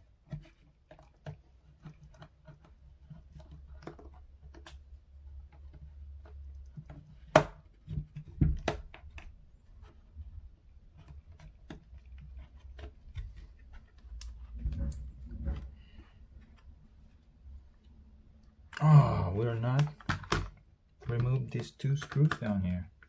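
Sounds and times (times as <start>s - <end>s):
hands tapping plastic keyboard case: 19.6s - 23.0s.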